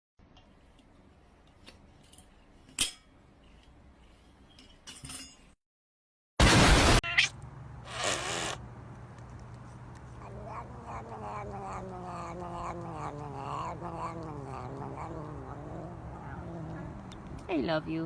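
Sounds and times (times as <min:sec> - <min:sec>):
cat yowling: 0:10.2 - 0:17.1.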